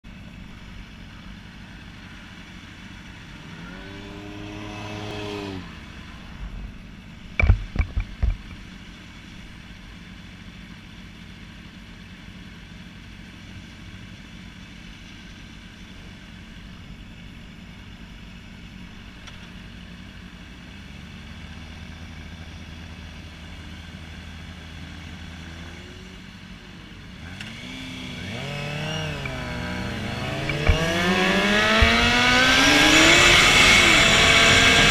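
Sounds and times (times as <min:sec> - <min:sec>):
motorcycle engine revving: 0:01.9 - 0:08.4, 0:21.3 - 0:34.9.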